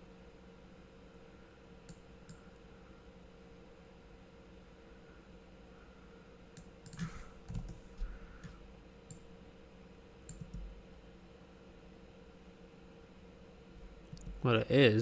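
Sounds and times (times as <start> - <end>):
faint electrical hum: 0.0 - 15.0
mouse and keyboard clicks: 6.8 - 8.5, 10.3 - 10.7.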